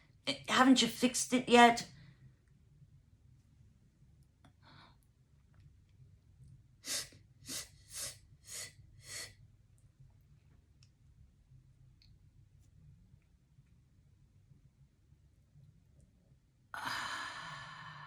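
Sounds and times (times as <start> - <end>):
faint breath: 16.8 - 18.0
woman gasping breathily: 16.8 - 18.0.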